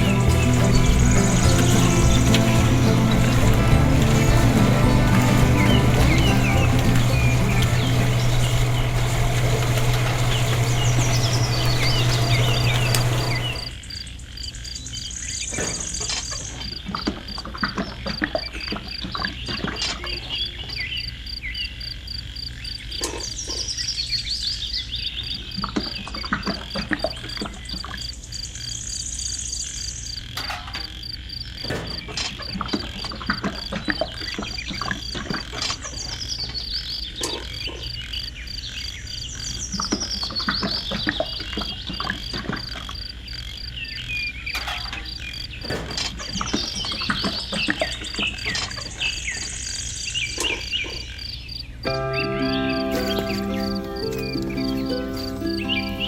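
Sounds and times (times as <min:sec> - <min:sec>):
loud steady low hum: 0:00.0 - 0:13.7
high bird chirps: 0:00.0 - 0:13.8, 0:43.7 - 0:56.0
frogs croaking: 0:00.0 - 0:56.0.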